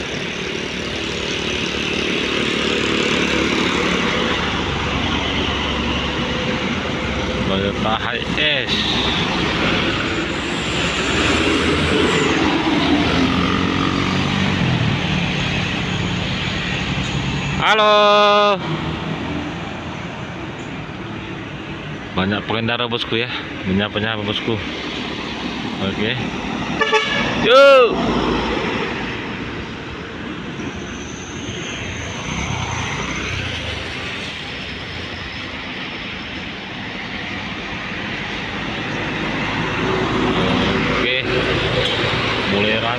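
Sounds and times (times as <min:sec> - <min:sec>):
road noise: 0:00.0 - 0:42.9
vehicle passing on highway: 0:00.0 - 0:42.9
motor vehicle passing by: 0:08.8 - 0:17.6.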